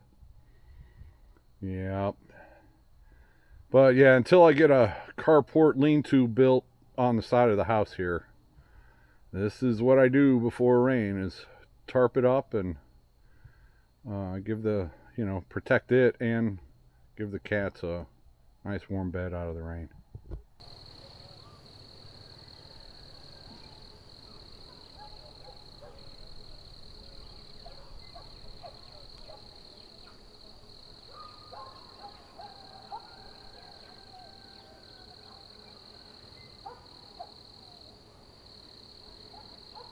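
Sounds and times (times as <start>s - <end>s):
insects droning: 0.0s - 19.8s, 20.6s - 39.9s
birds chirping and whistling: 27.1s - 30.3s.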